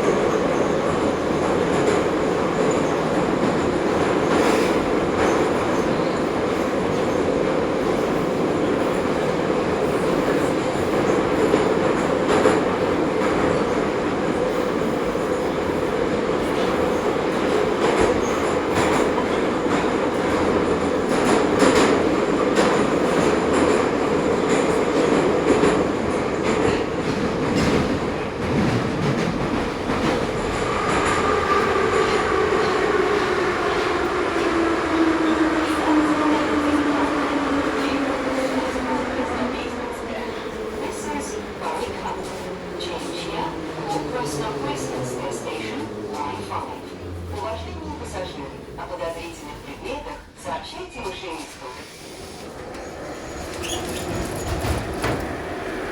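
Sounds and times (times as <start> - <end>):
metro train rumble: 0.0 - 55.9
wheels clacking over rail joints: 52.7 - 55.9.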